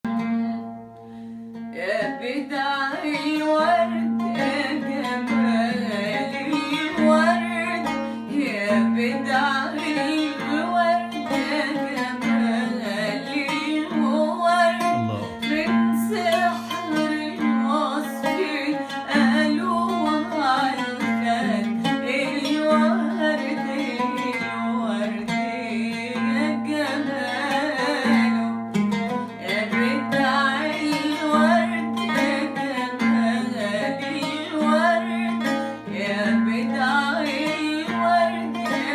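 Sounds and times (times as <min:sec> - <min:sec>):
plucked strings: 0:00.0 - 0:38.9
person singing: 0:14.9 - 0:15.7.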